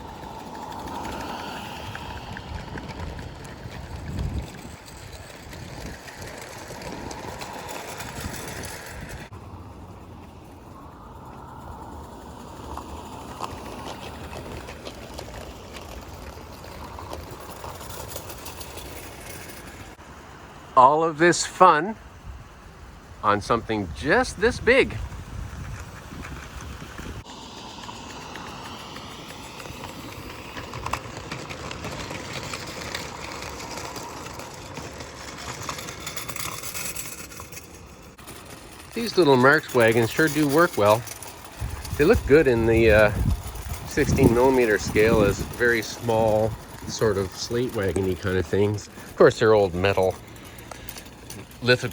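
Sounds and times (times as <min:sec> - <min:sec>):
toy train rumbling on rails: 0:00.0 - 0:20.3, 0:23.2 - 0:51.9
wheels clicking over track: 0:00.0 - 0:21.8, 0:23.2 - 0:51.9.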